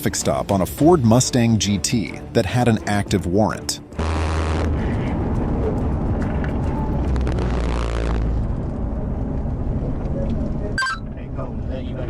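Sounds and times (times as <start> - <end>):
car engine and road noise: 4.0 - 12.0.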